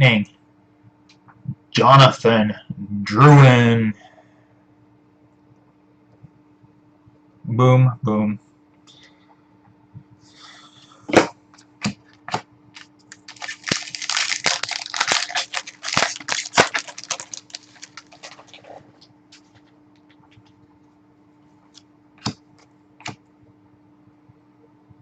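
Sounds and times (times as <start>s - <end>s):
faint steady hum: 0.0s - 25.0s
card packs clicking and snapping: 11.8s - 20.3s
wrappers crinkling: 12.8s - 20.5s.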